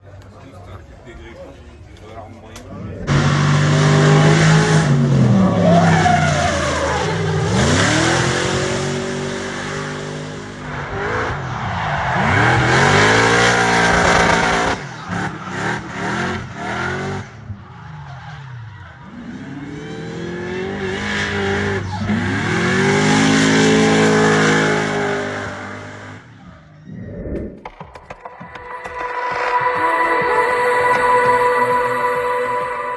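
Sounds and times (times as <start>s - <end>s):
car engine revving hard: 3.0s - 26.4s
tyres squealing: 4.1s - 9.0s.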